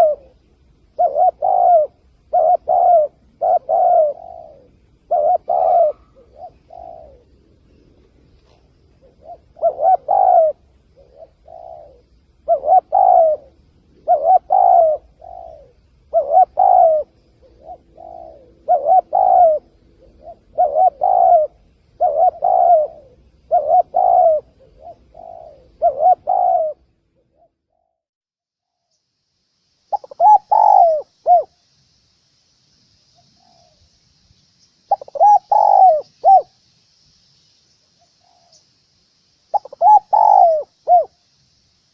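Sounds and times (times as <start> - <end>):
dove cooing: 0.0 - 28.0, 29.9 - 31.6, 34.9 - 36.6, 39.5 - 41.2
faint hiss: 0.0 - 28.0, 28.6 - 41.9.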